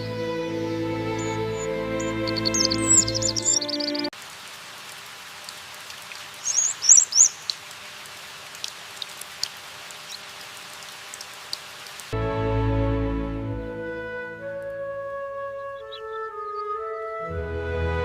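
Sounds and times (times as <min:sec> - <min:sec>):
rain hissing: 0:00.0 - 0:14.8
small bird chirping: 0:01.0 - 0:04.1, 0:06.4 - 0:07.6
raindrops ticking: 0:02.0 - 0:12.2.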